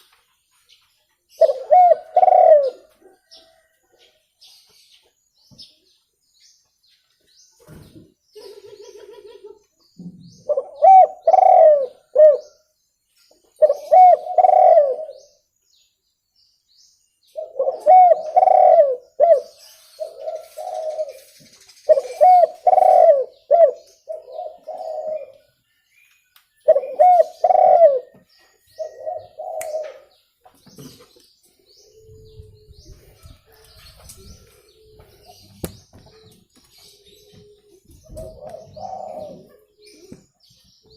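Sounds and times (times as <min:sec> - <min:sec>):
dove cooing: 0:01.4 - 0:03.7, 0:10.4 - 0:12.6, 0:13.6 - 0:15.4, 0:17.3 - 0:21.3, 0:21.9 - 0:25.4, 0:26.6 - 0:28.2, 0:28.8 - 0:30.1, 0:34.3 - 0:40.3.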